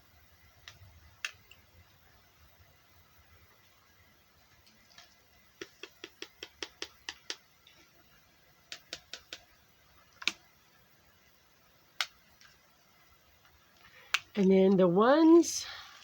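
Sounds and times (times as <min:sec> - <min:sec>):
small sharp plastic clicks: 0:00.6 - 0:01.6, 0:10.1 - 0:10.5, 0:12.0 - 0:12.6, 0:13.4 - 0:14.4.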